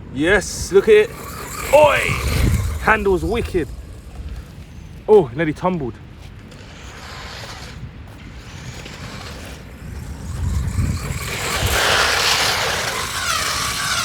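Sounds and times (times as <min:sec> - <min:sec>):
rc truck electric motor: 0:00.3 - 0:05.1, 0:06.2 - 0:14.0.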